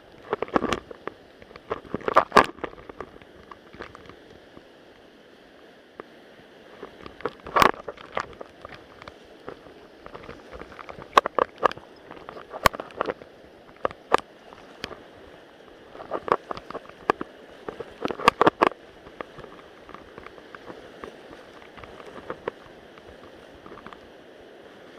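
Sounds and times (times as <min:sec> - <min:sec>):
mountain stream rushing: 0:00.0 - 0:24.9
sharp clicks and knocks: 0:07.0 - 0:15.0, 0:16.0 - 0:20.8.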